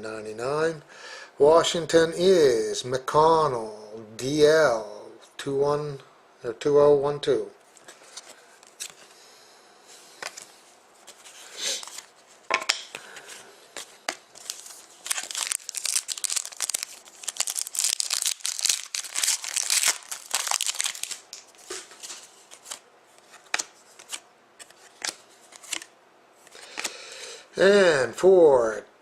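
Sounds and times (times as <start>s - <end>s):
plastic packaging crinkling: 13.8s - 22.8s.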